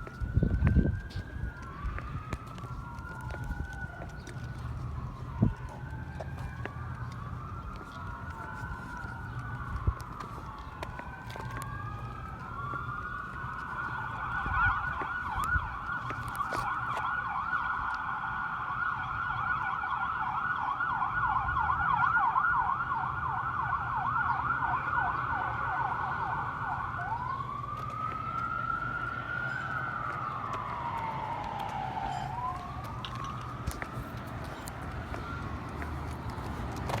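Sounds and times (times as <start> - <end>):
low vehicle rumble: 0.0 - 16.8, 25.0 - 37.0
siren wailing: 0.0 - 37.0
siren yelping: 0.0 - 37.0.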